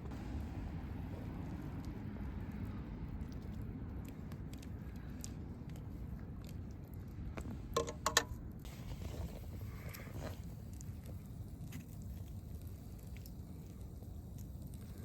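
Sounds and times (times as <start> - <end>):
campfire crackling: 8.6 - 15.0.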